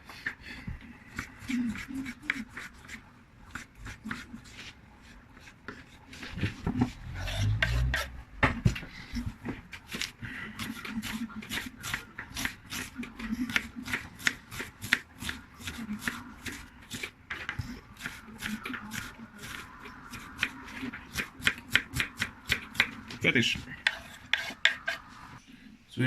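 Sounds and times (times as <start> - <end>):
rasping strokes on food: 1.0 - 8.2, 9.1 - 25.4.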